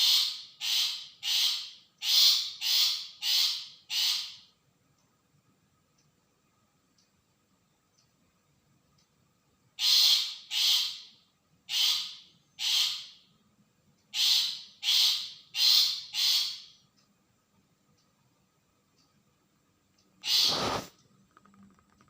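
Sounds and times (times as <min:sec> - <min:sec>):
bird giving harsh rasping calls: 0:00.0 - 0:04.4, 0:09.8 - 0:11.1, 0:11.7 - 0:13.2, 0:14.1 - 0:16.7, 0:20.2 - 0:20.9.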